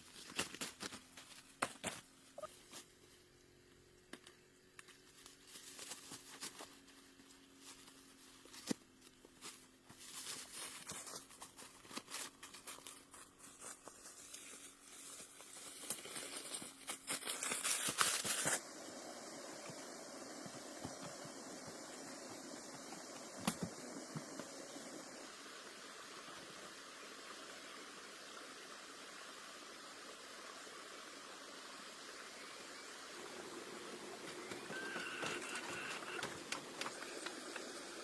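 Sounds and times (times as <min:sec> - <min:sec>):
crinkling and rustling: 0:00.0 - 0:03.3, 0:04.8 - 0:18.6, 0:34.2 - 0:38.0
steady hiss: 0:13.7 - 0:38.0.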